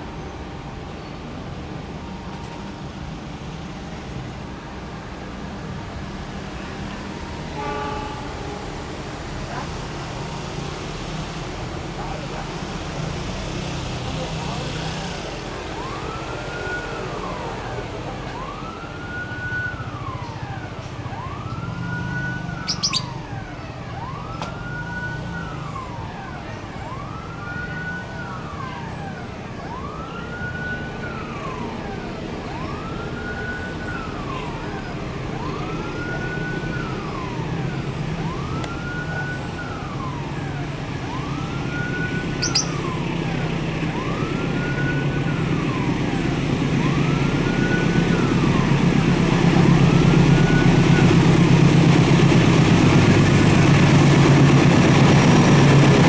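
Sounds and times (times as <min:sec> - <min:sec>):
electronic warning siren wailing: 0:15.2 - 0:56.0.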